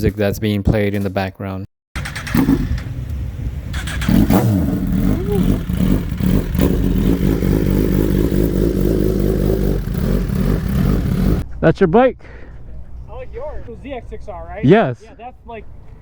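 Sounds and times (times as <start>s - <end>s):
vehicle engine idling: 2.0s - 11.4s.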